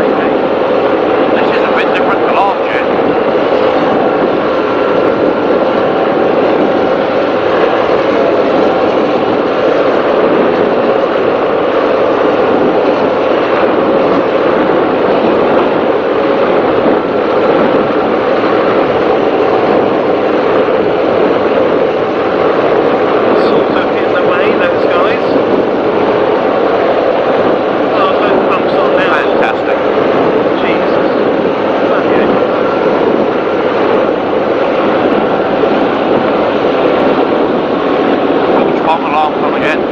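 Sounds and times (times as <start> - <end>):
powerboat engines droning: 0.0 - 39.9
wind and water rushing on hull: 0.0 - 39.9.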